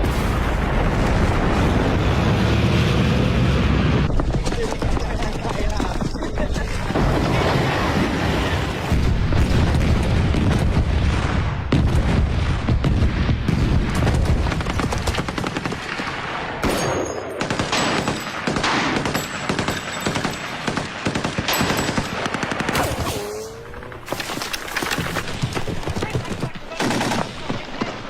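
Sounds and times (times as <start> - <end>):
machine-gun fire: 6.9 - 23.4
rifle shots: 13.6 - 23.4.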